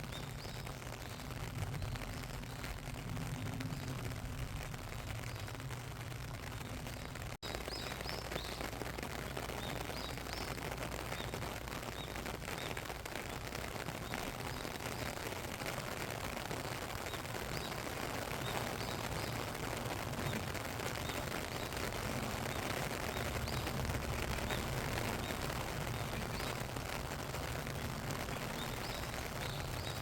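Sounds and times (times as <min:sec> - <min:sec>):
steady rain falling: 0:00.0 - 0:30.0
bird chirps: 0:06.6 - 0:13.4, 0:20.2 - 0:26.7, 0:28.0 - 0:30.0.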